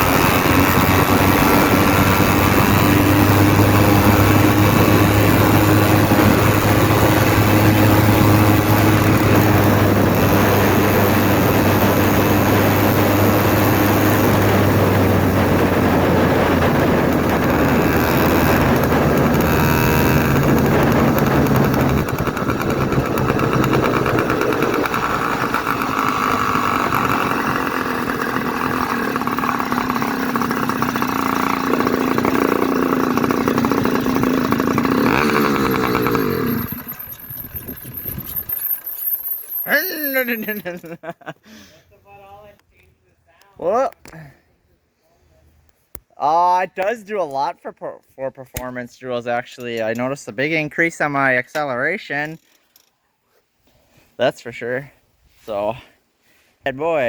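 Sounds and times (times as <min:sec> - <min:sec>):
loud two-stroke engine running: 0:00.0 - 0:40.8.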